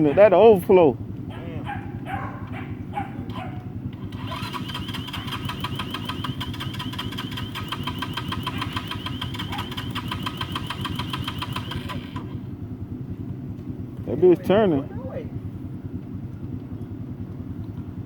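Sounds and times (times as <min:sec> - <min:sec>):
low engine rumble: 0:00.0 - 0:18.0
fast metallic ticking: 0:04.1 - 0:12.0.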